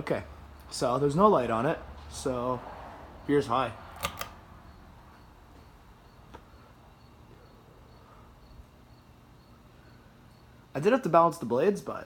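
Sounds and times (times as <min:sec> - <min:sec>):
ceiling fan hum: 0:00.0 - 0:12.0
cricket chirping: 0:04.3 - 0:11.9.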